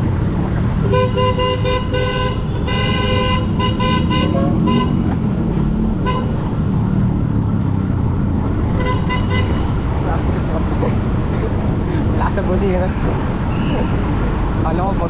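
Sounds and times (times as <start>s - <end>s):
traffic rumble: 0.0s - 15.0s
wind: 0.0s - 15.0s
vehicle horn honking: 0.8s - 5.1s, 6.0s - 6.5s, 8.7s - 9.8s.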